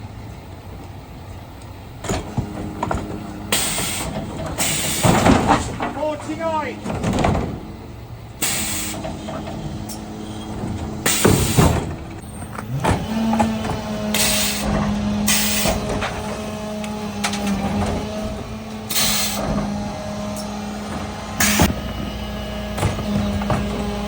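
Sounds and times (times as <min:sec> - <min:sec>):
truck engine running: 0:00.0 - 0:24.0
air hissing bursts: 0:08.4 - 0:09.1, 0:11.0 - 0:11.8, 0:14.1 - 0:14.7.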